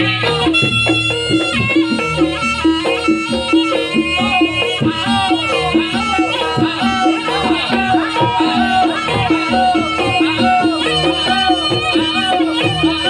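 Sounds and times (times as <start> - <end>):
pitched percussion pattern: 0.0 - 13.0
wind instrument melody: 0.0 - 13.0.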